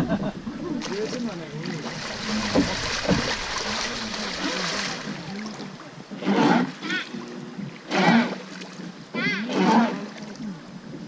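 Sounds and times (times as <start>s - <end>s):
faint voices: 0.0s - 11.0s
river water rushing and splashing: 0.4s - 9.1s.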